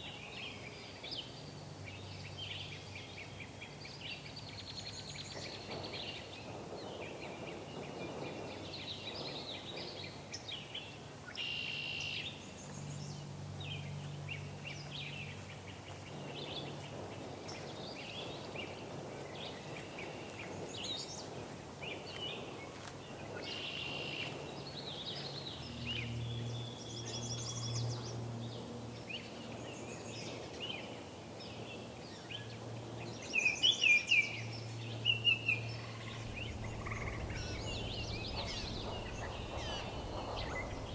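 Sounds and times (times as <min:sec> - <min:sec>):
songbirds singing: 0:00.0 - 0:40.9
faint low hum: 0:24.3 - 0:40.9.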